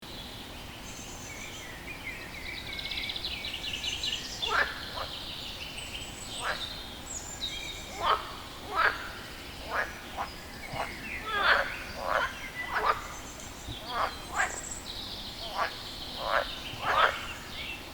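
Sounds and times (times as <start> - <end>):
birds chirping and trilling: 0.3 - 17.9
frog calling: 4.0 - 5.4, 6.0 - 7.0, 7.7 - 17.7.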